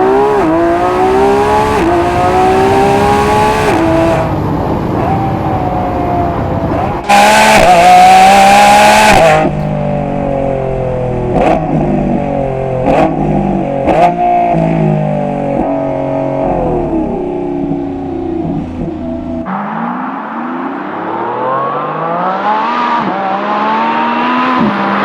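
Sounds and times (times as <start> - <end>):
car engine accelerating: 0.0 - 25.0
exhaust cracks: 6.6 - 19.5.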